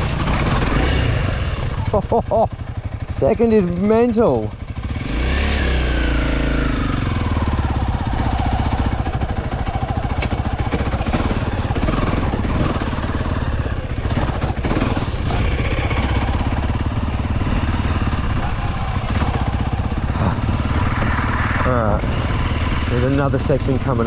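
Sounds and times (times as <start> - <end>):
dirt bike engine under load: 7.3 - 22.4.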